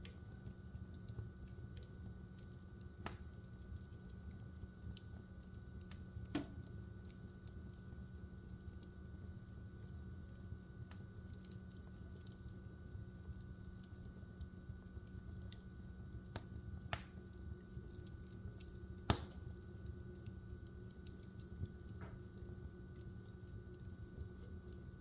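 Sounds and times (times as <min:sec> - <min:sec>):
fireplace logs crackling: 0:00.0 - 0:25.0
low steady rumble and hum: 0:00.0 - 0:25.0
loud fire pop: 0:19.1 - 0:19.4.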